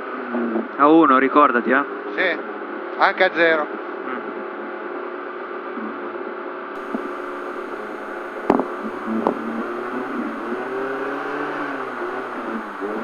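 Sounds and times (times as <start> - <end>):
car engine idling: 6.8 - 13.0.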